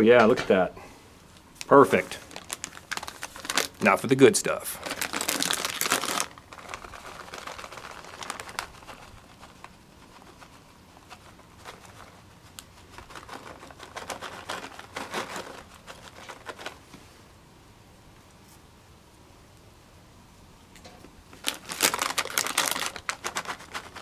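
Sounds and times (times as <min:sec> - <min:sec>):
plastic packaging crinkling: 0:01.3 - 0:16.8, 0:21.3 - 0:24.0.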